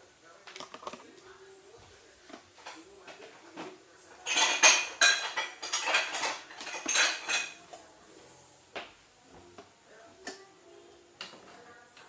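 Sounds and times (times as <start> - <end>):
cutlery clinking against a dish: 2.5 - 7.9.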